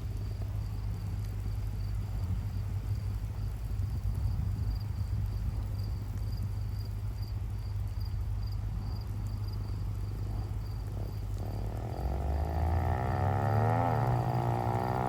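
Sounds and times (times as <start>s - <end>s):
dirt bike engine revving: 11.0s - 15.0s.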